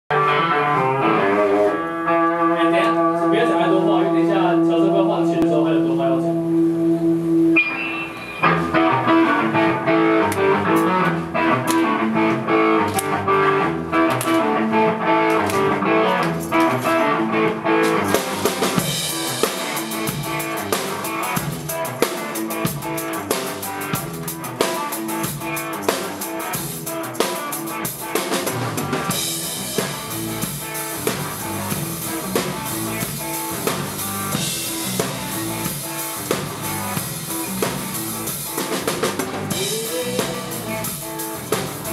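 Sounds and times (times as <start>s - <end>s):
guitar: 0.0s - 41.9s
drum kit beat: 6.6s - 41.9s
cymbals: 17.9s - 38.6s.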